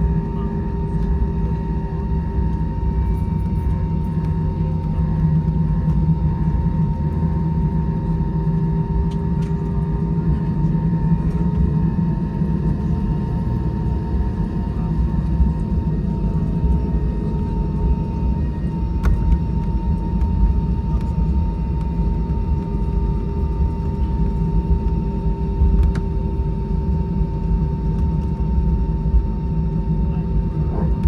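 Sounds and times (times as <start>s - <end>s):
low jet engine rumble: 0.0s - 31.0s.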